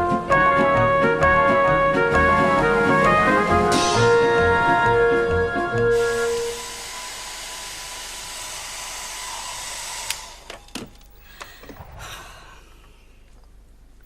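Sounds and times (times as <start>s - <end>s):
hair dryer blowing: 5.7s - 10.5s.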